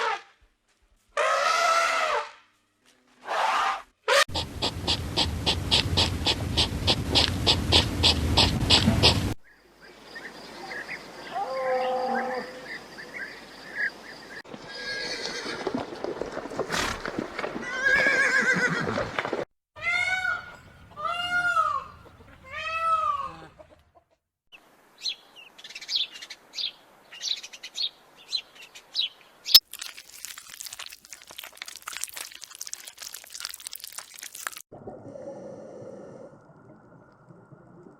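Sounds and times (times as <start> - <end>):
harsh animal calls: 3.3 - 9.4.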